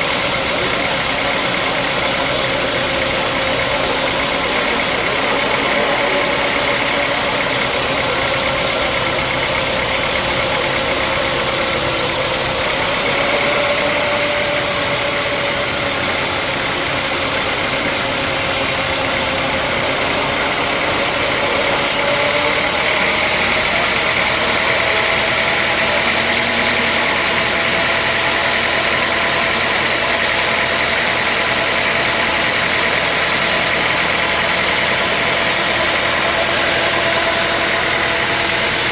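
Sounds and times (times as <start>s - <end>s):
sawmill motor drone: 0.0s - 38.9s.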